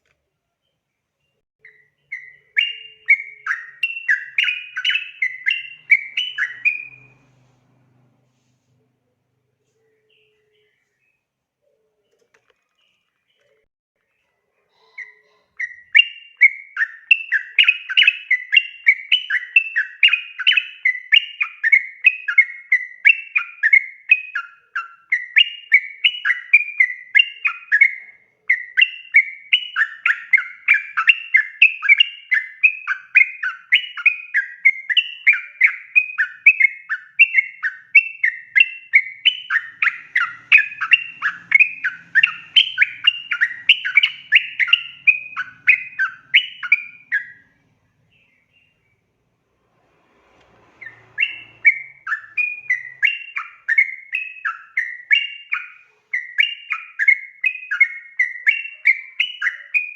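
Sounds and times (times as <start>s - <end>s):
bulbul singing bubbly whistled notes: 1.6s - 7.2s, 15.6s - 47.5s, 50.8s - 59.9s.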